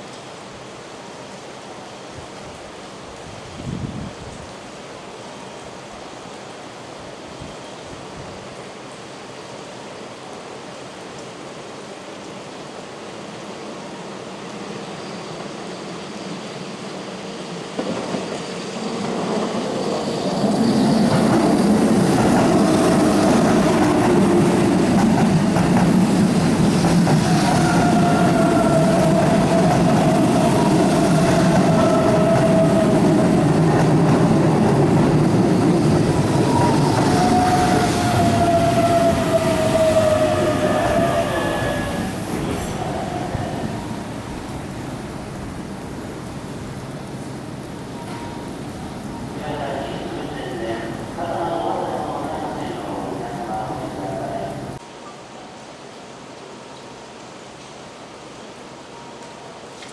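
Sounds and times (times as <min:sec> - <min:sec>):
rain hiss: 0:00.0 - 0:59.9
electric train rolling rumble: 0:12.4 - 0:54.8
train wheels squealing on curve: 0:14.6 - 0:23.9, 0:27.1 - 0:33.6, 0:35.4 - 0:44.1.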